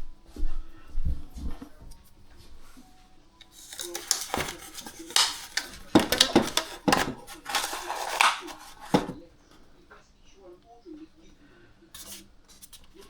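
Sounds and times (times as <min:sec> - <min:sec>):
hands handling small items: 0:03.4 - 0:09.2.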